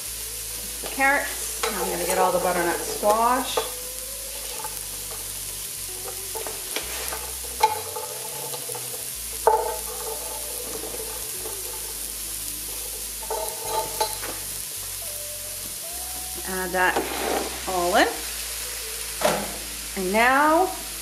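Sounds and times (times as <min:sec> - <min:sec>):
vegetables sizzling in a pot: 0:00.0 - 0:21.0.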